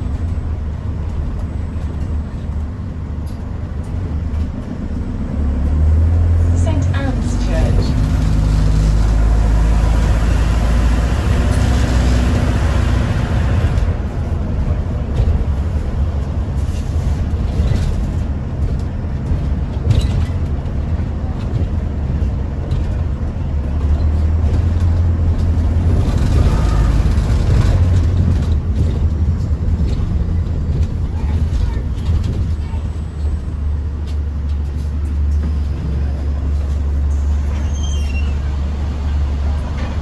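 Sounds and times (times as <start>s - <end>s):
bus engine humming: 0.0s - 40.0s.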